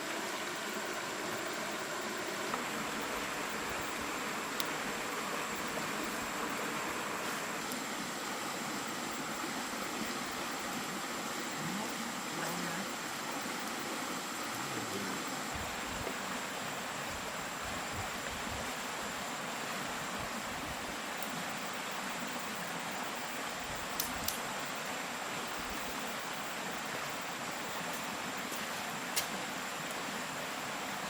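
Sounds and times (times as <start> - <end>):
flowing water rushing: 0.0 - 31.0
thin high steady tone: 0.0 - 31.0
faint clicks: 23.9 - 24.4.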